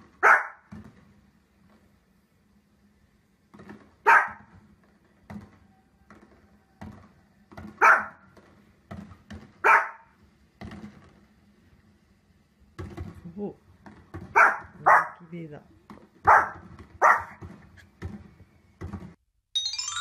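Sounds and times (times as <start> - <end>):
small dog barking: 0.2 - 0.7, 4.0 - 4.5, 7.8 - 8.2, 9.6 - 10.1, 14.3 - 15.3, 16.2 - 17.4.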